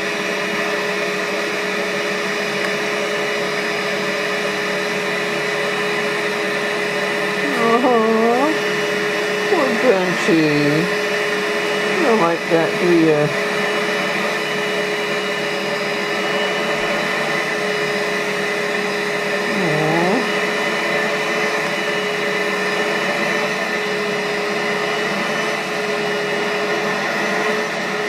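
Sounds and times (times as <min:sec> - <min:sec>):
rug cleaner motor whining: 0:00.0 - 0:28.0.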